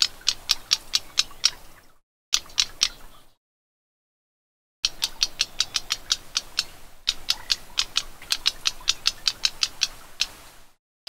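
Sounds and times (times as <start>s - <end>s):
bird ticking call: 0.0s - 1.8s, 2.4s - 3.4s, 4.8s - 10.5s.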